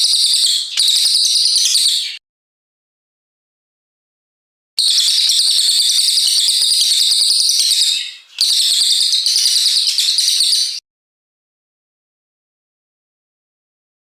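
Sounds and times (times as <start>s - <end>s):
songbird singing fast trill: 4.8s - 10.8s.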